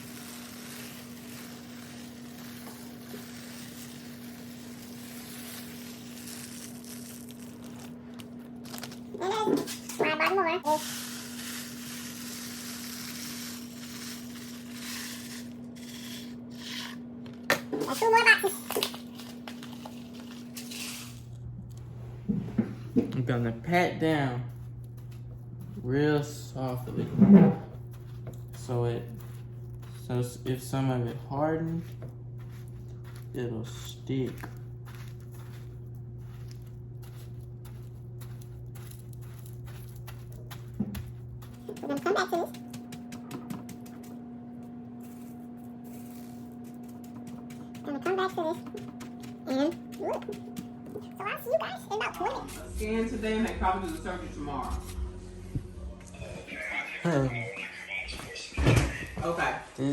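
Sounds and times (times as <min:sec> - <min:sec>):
hard candies rattling: 0:00.0 - 0:09.8, 0:10.8 - 0:16.7
low hum: 0:18.7 - 0:51.2, 0:51.8 - 0:57.5.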